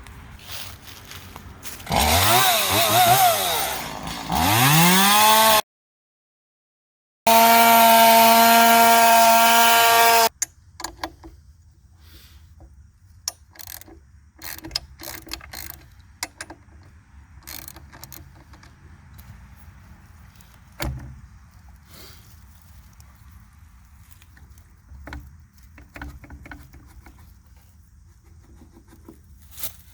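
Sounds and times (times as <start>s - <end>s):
chainsaw running: 1.8s - 5.6s, 7.3s - 10.3s
light clicks and knocks: 24.2s - 29.3s.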